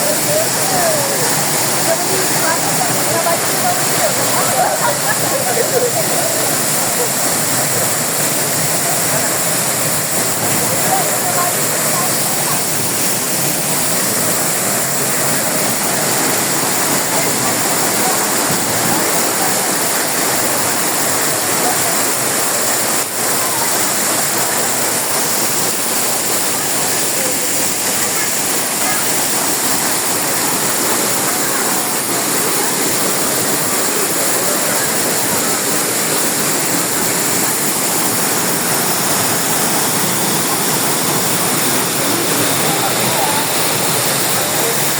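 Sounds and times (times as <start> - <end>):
waterfall roaring: 0.0 - 44.9.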